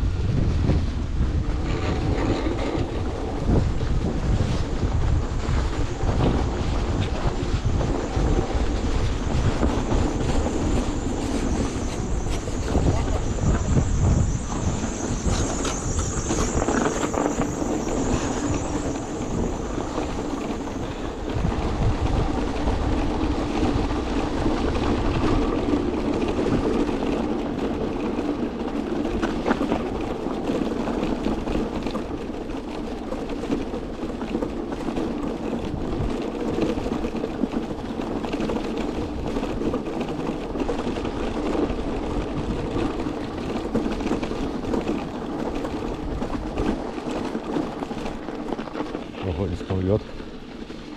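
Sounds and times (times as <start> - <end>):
low rumble: 0.0 - 27.8
electric vehicle running hum: 0.0 - 50.9
wind on microphone: 0.0 - 50.9.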